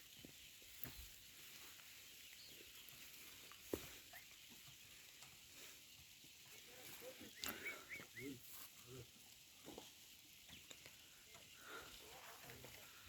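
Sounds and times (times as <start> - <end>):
faint chirps: 0.1 - 9.1.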